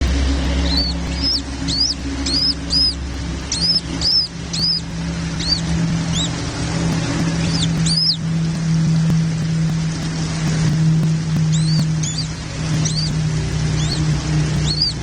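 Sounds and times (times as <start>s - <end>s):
nestling birds chirping: 0.0s - 15.0s
steady low hum: 0.0s - 15.0s.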